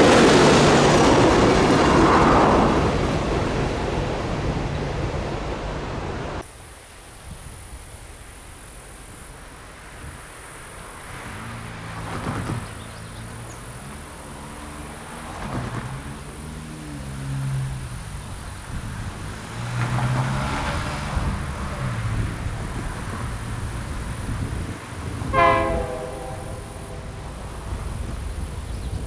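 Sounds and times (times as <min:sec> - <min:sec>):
train wheels rumbling on rails: 0:00.0 - 0:06.5, 0:07.4 - 0:29.0.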